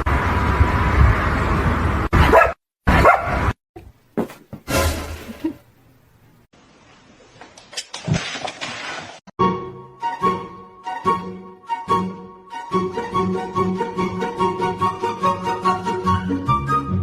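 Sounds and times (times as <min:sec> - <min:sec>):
dog barking: 0:02.2 - 0:03.5.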